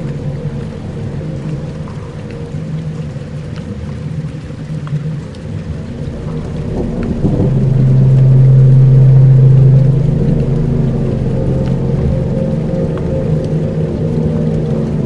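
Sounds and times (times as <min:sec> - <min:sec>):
faint rain-like crackle: 0:00.0 - 0:15.0
low rumbling drone: 0:00.0 - 0:15.0
deep steady tone: 0:05.5 - 0:15.0.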